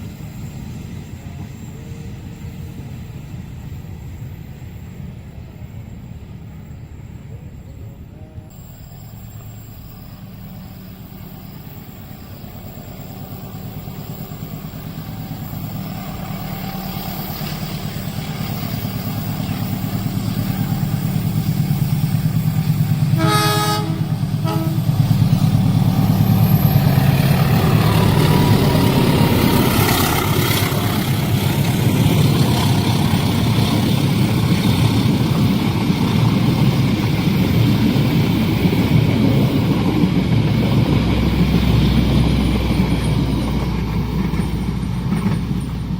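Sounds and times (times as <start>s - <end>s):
diesel train engine rumble: 0.0s - 45.9s
train wheels rushing on rails: 0.0s - 45.9s
train horn blast: 23.1s - 25.3s.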